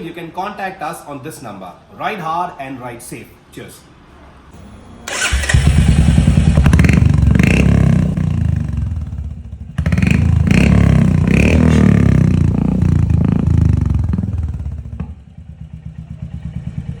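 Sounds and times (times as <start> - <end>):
motorcycle engine idling: 5.1 - 17.0
motorcycle engine revving: 5.1 - 17.0.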